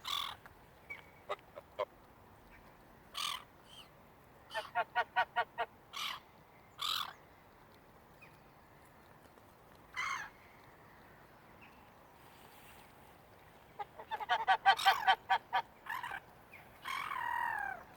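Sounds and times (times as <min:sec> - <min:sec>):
geese calling: 0:13.8 - 0:16.2.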